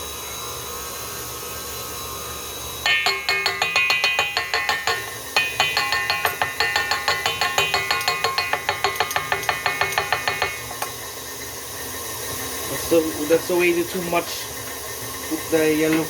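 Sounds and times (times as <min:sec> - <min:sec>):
utensil beating batter in bowl: 0:02.9 - 0:11.3.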